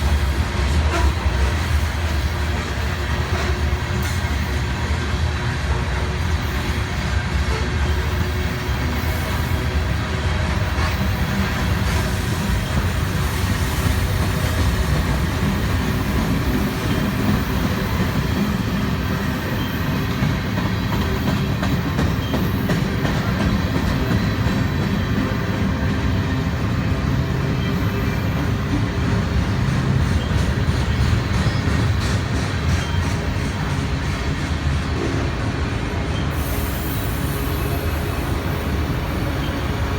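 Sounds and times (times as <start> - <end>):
freight train wheels rumbling: 0.0 - 39.9
train wheels clickety-clack: 0.0 - 39.9.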